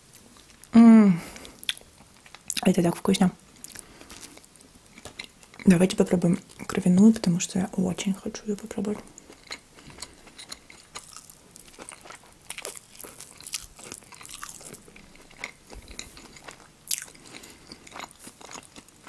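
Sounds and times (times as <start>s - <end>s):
mouth clicks and smacks: 1.5s - 2.7s.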